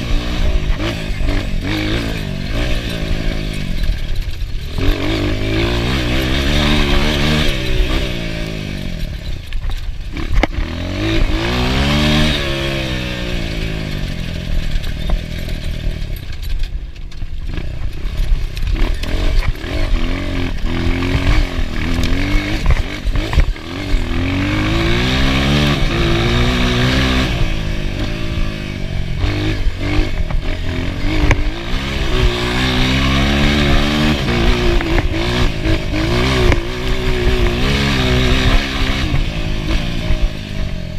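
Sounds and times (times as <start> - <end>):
dirt bike engine revving: 0.0 - 40.9
knocks and clatter: 0.1 - 28.5.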